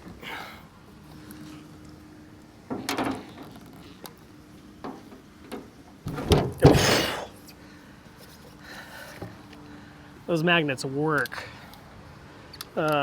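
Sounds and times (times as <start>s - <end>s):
loud knocks: 6.1s - 7.1s.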